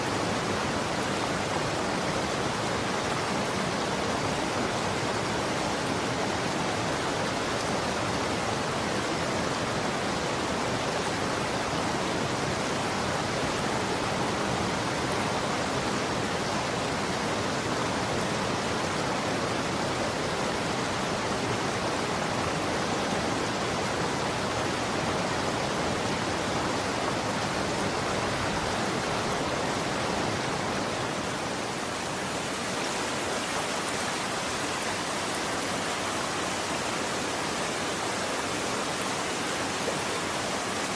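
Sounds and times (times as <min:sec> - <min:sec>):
running water flowing: 0:16.8 - 0:40.9.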